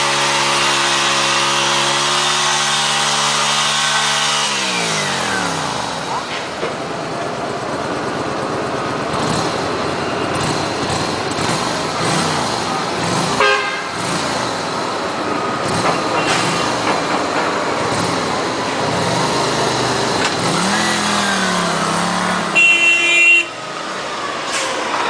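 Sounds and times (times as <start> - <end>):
engine revving up: 0.0 - 6.4, 9.1 - 22.6
road traffic engines: 0.0 - 25.0
car horn toot: 13.4 - 14.0, 22.4 - 23.6.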